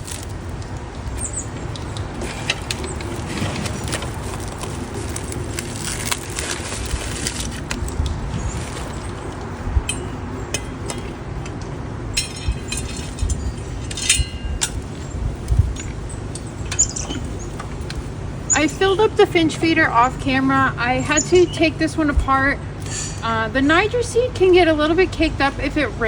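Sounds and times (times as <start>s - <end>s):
metallic clinks of feeder hardware: 9.9s - 15.1s.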